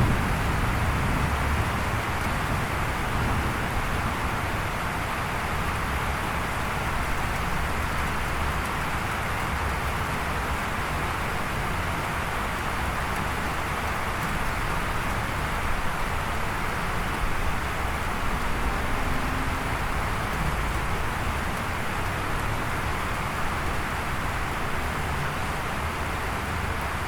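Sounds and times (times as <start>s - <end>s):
steady rain hiss: 0.0s - 27.0s
low rumble: 17.8s - 21.6s.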